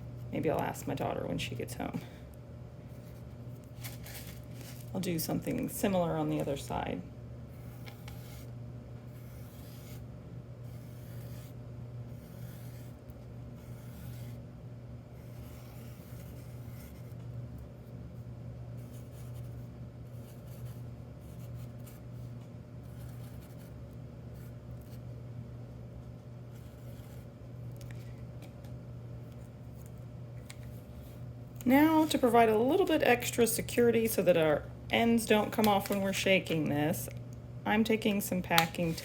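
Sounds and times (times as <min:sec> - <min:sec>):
scratchy drawing strokes on cardboard: 0:07.6 - 0:08.5, 0:09.1 - 0:10.0, 0:10.7 - 0:13.0, 0:13.6 - 0:14.4, 0:15.2 - 0:17.2.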